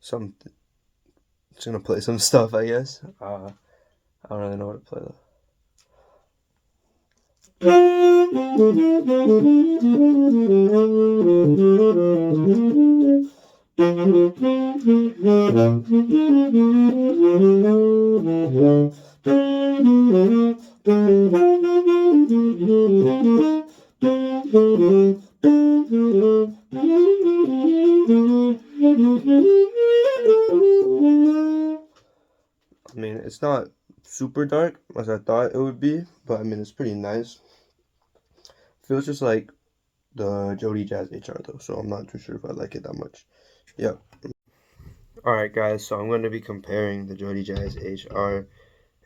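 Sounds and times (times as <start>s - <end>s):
tenor saxophone playing jazz: 7.6s - 32.0s.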